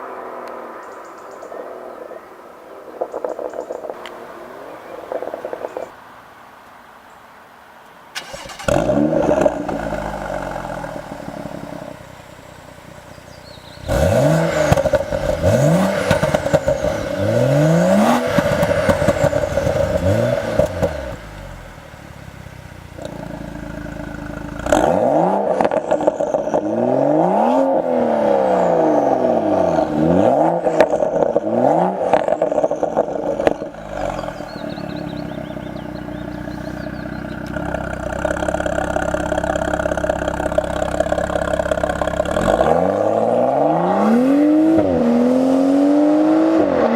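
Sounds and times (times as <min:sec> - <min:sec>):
exhaust pops and crackles: 0:03.0 - 0:04.2, 0:05.0 - 0:06.0, 0:08.2 - 0:26.9, 0:29.2 - 0:43.2
car engine revving: 0:08.2 - 0:46.9
car engine starting: 0:08.2 - 0:46.9.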